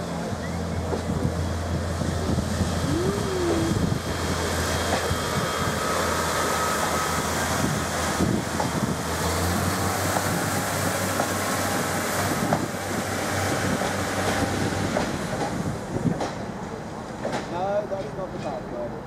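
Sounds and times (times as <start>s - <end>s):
diesel engine humming: 0.0s - 8.4s
train wheels rumbling: 0.0s - 19.0s.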